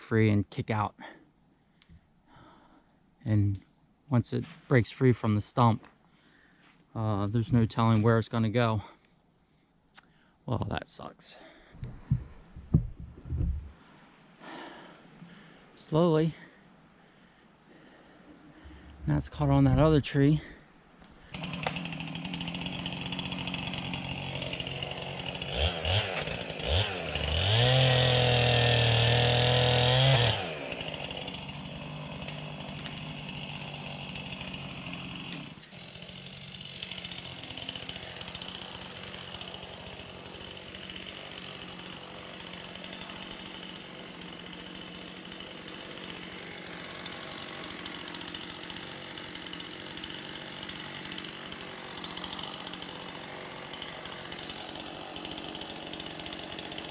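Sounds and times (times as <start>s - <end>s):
chainsaw idling and revving: 21.1s - 56.9s.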